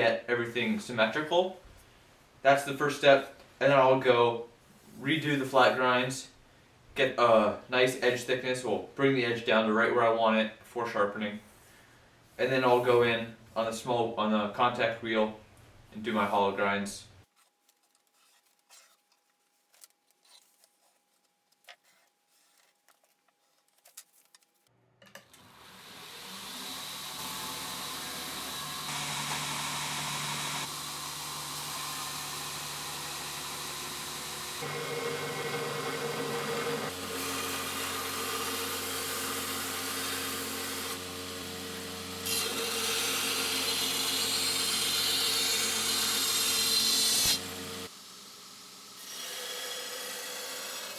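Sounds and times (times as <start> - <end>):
belt grinder grinding steel: 25.3 - 50.9.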